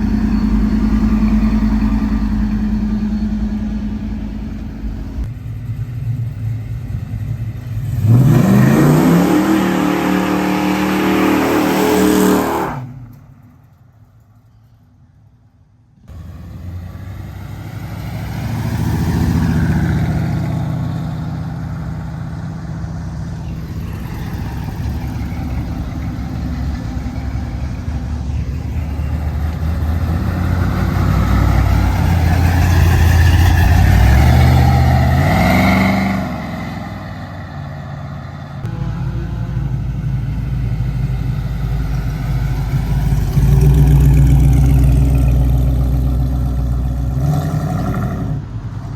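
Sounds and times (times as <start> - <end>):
car engine starting and revving: 6.2 - 13.2, 16.1 - 38.8, 39.7 - 48.9.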